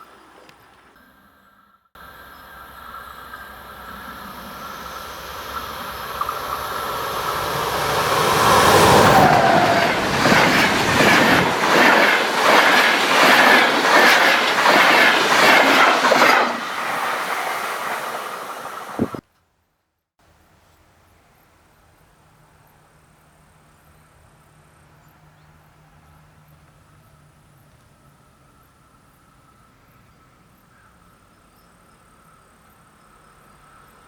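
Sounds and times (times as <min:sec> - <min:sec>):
locomotive whine: 0:02.0 - 0:19.2
train rumbling past: 0:02.0 - 0:19.2
wheels clattering over rails: 0:03.0 - 0:19.2.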